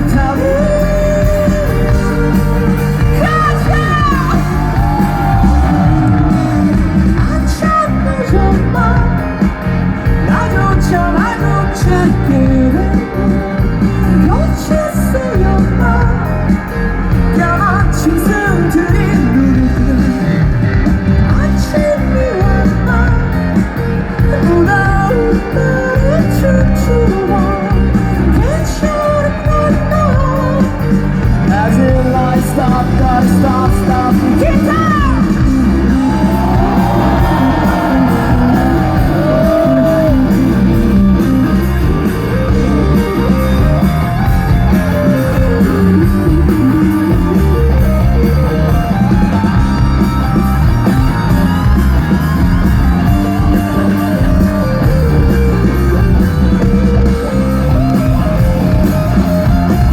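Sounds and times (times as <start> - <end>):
person singing: 0.0 - 41.0
drum kit: 0.0 - 59.9
electric guitars: 0.0 - 59.9.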